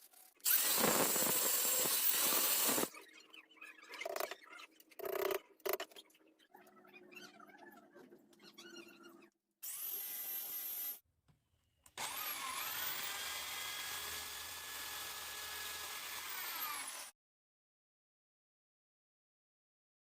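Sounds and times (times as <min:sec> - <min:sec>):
handheld power tool whining: 0:00.4 - 0:02.9, 0:12.0 - 0:17.1.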